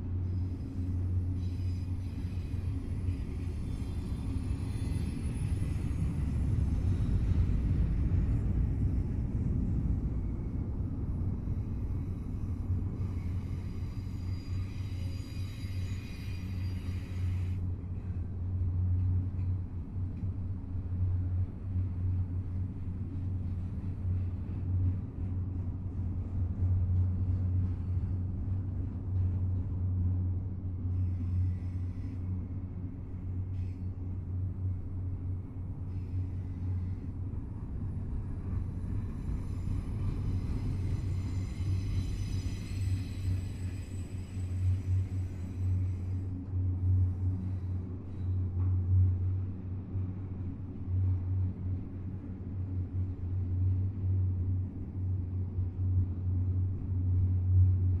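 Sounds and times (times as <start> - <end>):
freight train rolling past: 0.2 - 17.6, 35.9 - 49.3.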